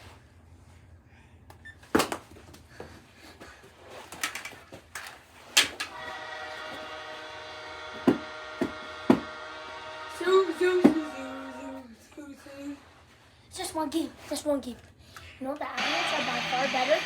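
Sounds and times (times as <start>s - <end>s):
steady horn-like tone: 5.9s - 11.8s, 15.8s - 17.0s.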